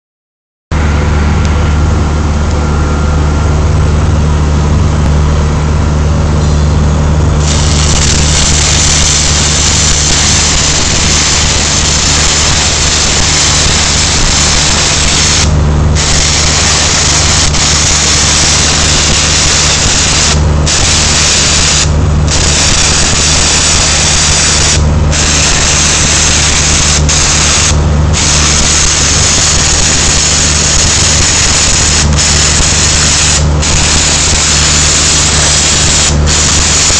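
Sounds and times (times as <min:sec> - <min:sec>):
welding machine humming: 0:06.2 - 0:36.9
welding arc crackling hiss: 0:07.4 - 0:36.9.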